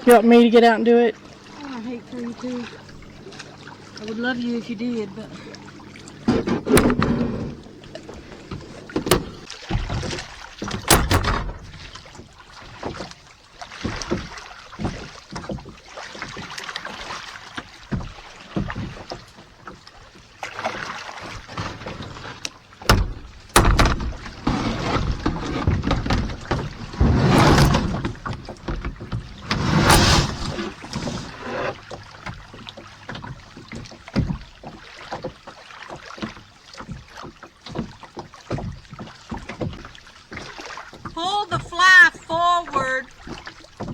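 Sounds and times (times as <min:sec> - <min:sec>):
water sloshing: 0:00.0 - 0:43.9
knocks against kayak hull: 0:06.2 - 0:13.1, 0:22.8 - 0:35.4.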